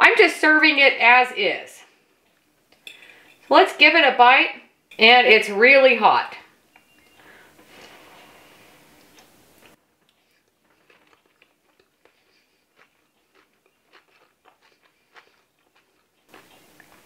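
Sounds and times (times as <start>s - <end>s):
person chewing with mouth clicks: 9.0s - 17.0s.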